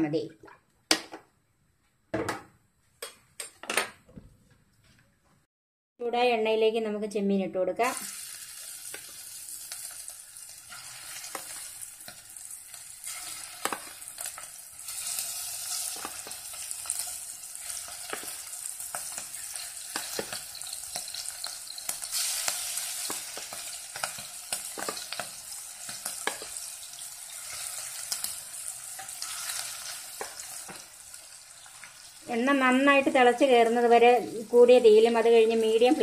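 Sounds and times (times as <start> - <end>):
prawns sizzling in oil: 7.8 - 36.0.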